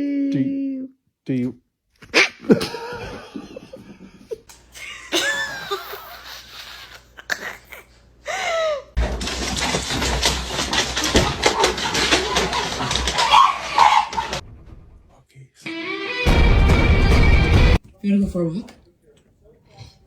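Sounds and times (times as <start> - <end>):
rustling rumbling noise: 9.0 - 15.2.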